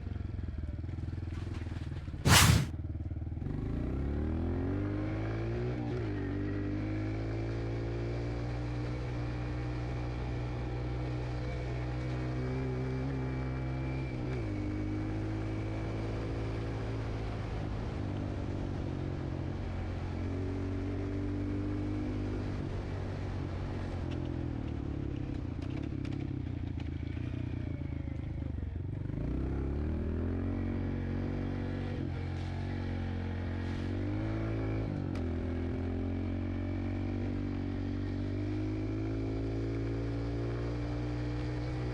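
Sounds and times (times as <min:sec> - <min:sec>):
dirt bike engine revving: 0:02.3 - 0:02.7.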